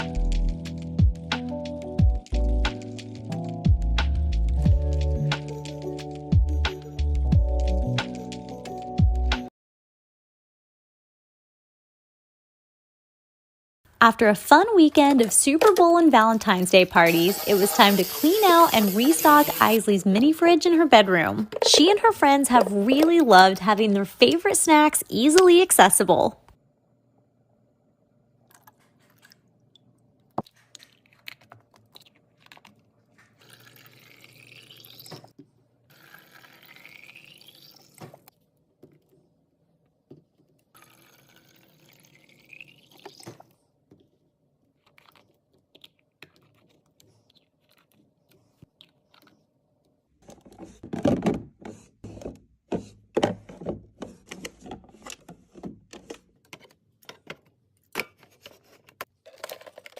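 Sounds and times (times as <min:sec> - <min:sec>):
liquid pouring into container: 0:30.4 - 0:35.3, 0:35.9 - 0:38.3, 0:40.7 - 0:43.6
items set down clattering: 0:50.2 - 0:59.9.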